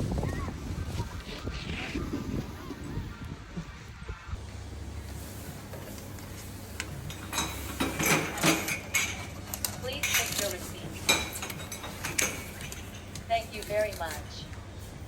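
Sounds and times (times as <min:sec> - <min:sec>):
steady low hum: 0:00.0 - 0:15.0
dishes and cutlery clinking: 0:07.0 - 0:13.2.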